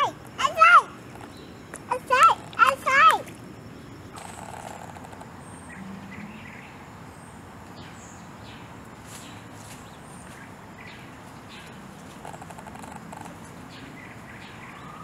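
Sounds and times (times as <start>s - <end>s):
outdoor background noise: 0.0s - 15.0s
bird chirps: 3.8s - 15.0s.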